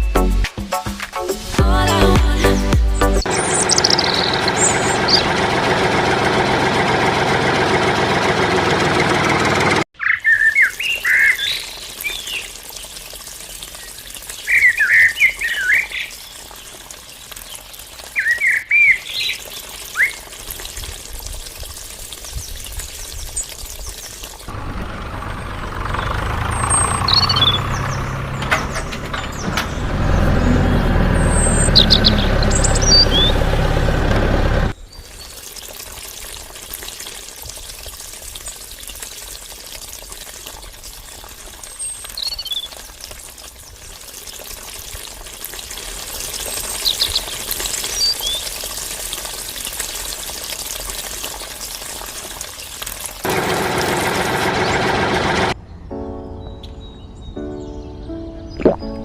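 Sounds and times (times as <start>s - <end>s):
loud low hum: 2.0s - 9.8s
small birds chirping: 3.0s - 5.3s, 10.0s - 20.3s, 25.9s - 33.5s, 41.6s - 42.8s, 46.4s - 48.6s.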